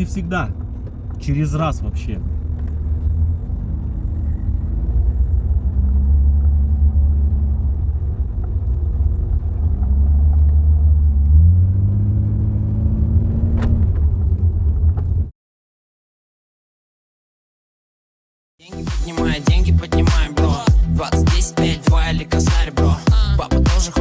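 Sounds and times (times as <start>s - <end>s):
car engine drone: 0.0s - 15.3s, 18.7s - 24.0s
road rumble: 0.0s - 15.3s.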